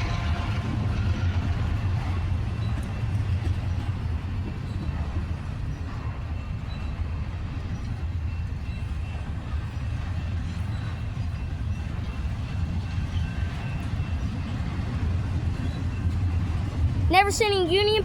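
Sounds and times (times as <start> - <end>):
freight train rumbling: 0.0 - 18.0.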